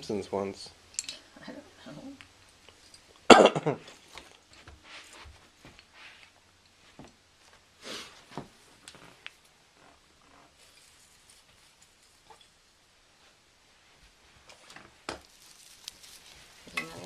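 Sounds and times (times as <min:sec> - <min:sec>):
person coughing: 0:03.3 - 0:03.8
handling noises: 0:14.4 - 0:17.0.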